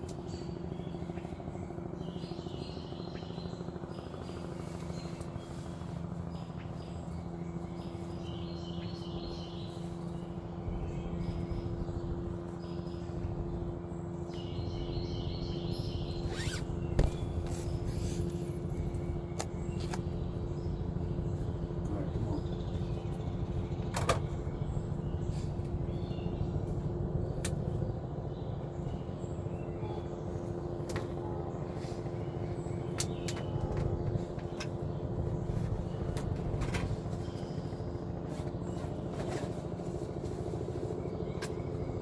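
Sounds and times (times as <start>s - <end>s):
helicopter hovering: 0.0s - 42.0s
faint bird chirps: 14.3s - 18.9s.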